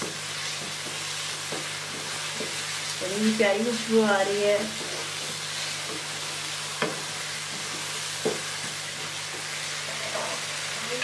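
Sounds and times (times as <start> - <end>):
wooden spatula stirring: 0.0 - 3.0
curry sizzling in a pan: 0.0 - 11.0.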